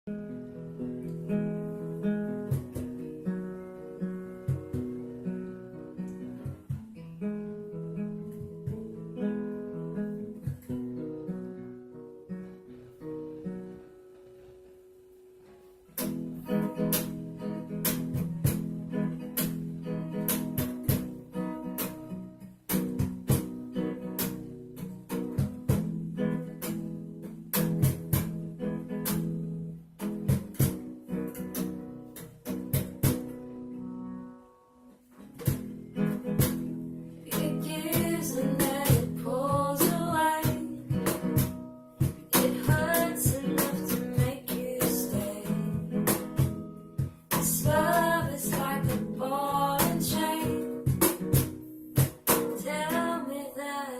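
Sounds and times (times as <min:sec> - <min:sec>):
acoustic guitar strumming: 0:00.1 - 0:53.9
person singing: 0:37.2 - 0:41.4, 0:42.2 - 0:46.3, 0:47.3 - 0:50.9, 0:52.4 - 0:53.9.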